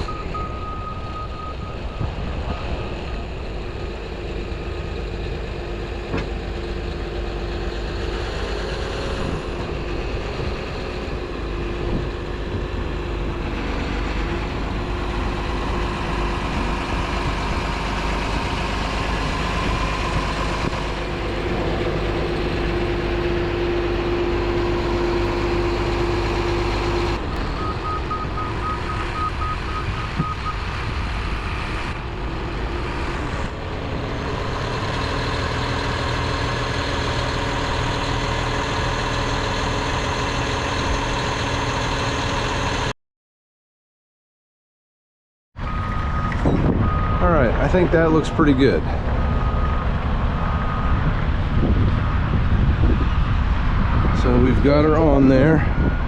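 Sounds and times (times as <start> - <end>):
backup alarm beeping: 0.0 - 1.8, 27.6 - 30.6
dump truck engine running: 0.0 - 42.9, 45.6 - 56.0.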